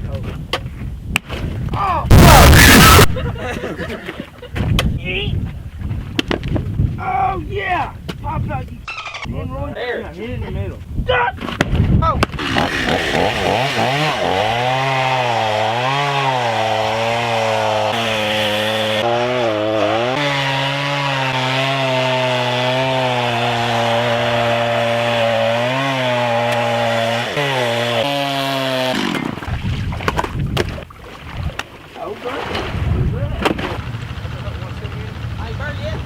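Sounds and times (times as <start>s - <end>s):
wind: 0.0s - 36.0s
chainsaw cutting ice: 12.4s - 29.5s.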